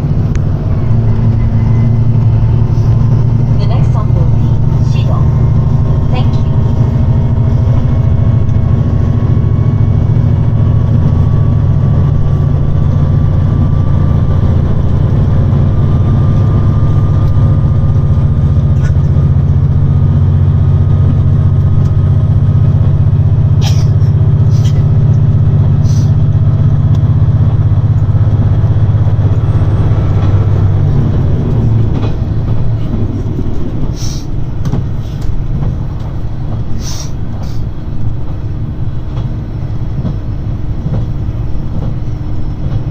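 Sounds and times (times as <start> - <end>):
diesel railcar engine running hard: 0.0 - 42.9.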